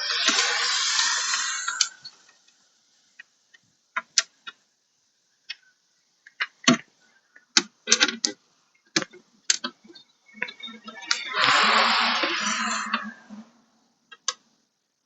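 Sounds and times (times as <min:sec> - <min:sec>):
dense noise: 0:00.0 - 0:02.3, 0:09.1 - 0:14.1.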